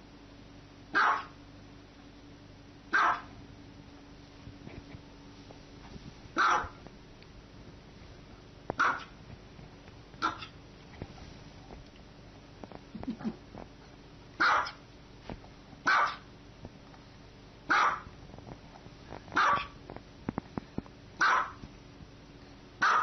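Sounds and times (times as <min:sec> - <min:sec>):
small dog barking: 0:00.9 - 0:01.4, 0:02.9 - 0:03.3, 0:06.4 - 0:06.8, 0:08.8 - 0:09.2, 0:10.2 - 0:10.6, 0:14.4 - 0:14.8, 0:15.8 - 0:16.3, 0:17.7 - 0:18.1, 0:19.4 - 0:19.8, 0:21.2 - 0:21.6, 0:22.8 - 0:23.0.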